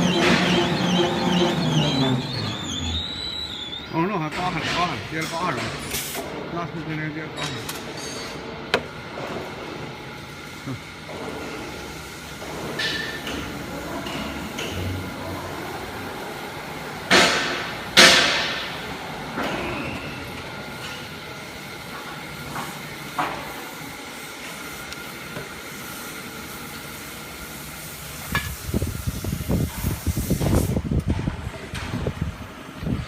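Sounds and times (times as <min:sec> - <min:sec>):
drilling machine humming: 0:00.0 - 0:05.6
hissing air bursts: 0:23.4 - 0:30.9.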